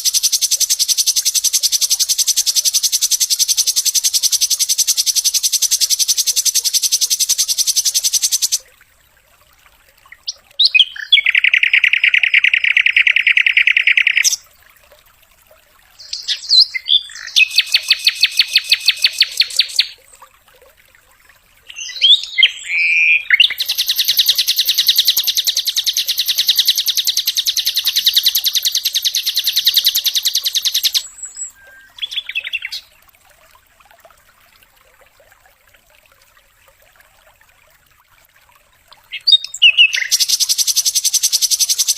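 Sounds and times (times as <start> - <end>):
bird singing rapid trills: 0.0 - 8.6, 10.6 - 14.4, 16.0 - 20.0, 21.7 - 32.9, 39.1 - 41.9.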